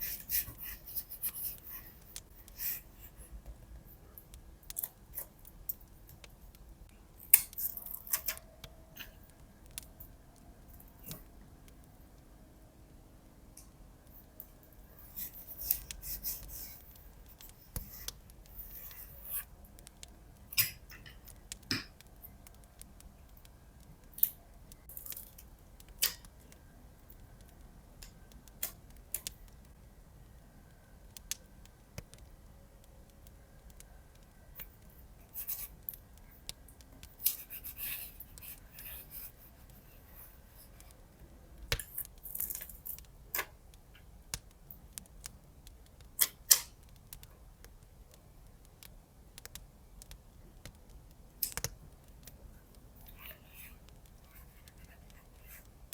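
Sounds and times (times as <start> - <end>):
light taps and clicks: 13.5 - 55.8.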